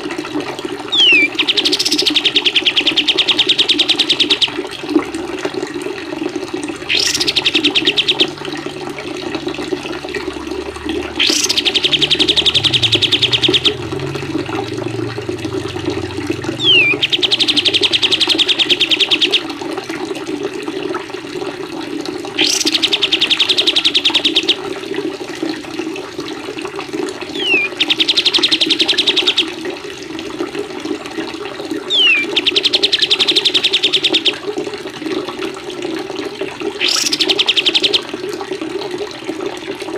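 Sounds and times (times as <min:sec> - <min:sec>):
running water: 0:00.0 - 0:39.9
songbird trilling: 0:00.9 - 0:04.6, 0:06.9 - 0:08.3, 0:11.2 - 0:13.8, 0:16.6 - 0:19.4, 0:22.4 - 0:24.6, 0:27.4 - 0:29.5, 0:31.9 - 0:34.4, 0:36.8 - 0:38.0.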